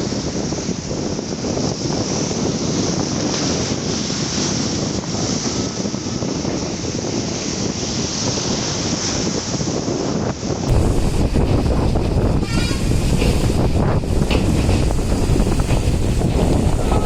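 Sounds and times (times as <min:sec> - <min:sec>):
wind rushing over microphone: 0:00.0 - 0:17.0
train rumbling on track: 0:10.5 - 0:17.0.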